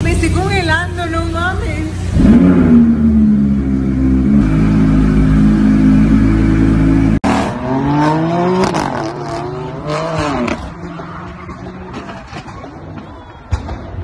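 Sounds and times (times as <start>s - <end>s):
loud low drone: 2.0s - 8.6s
car engine revving hard: 2.1s - 11.0s.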